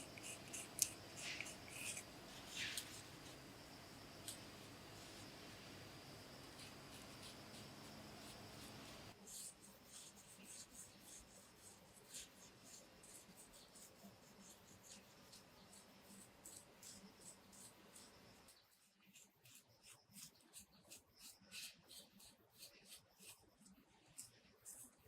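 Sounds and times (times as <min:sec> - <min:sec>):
steady low hum: 0:00.0 - 0:09.2
faint scratching and clicking: 0:00.0 - 0:25.0.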